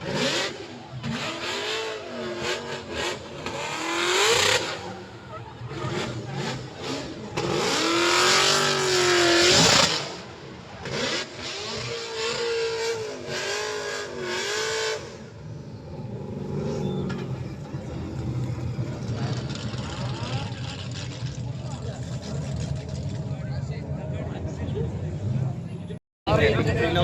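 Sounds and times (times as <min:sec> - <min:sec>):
car engines revving: 0:00.0 - 0:27.0.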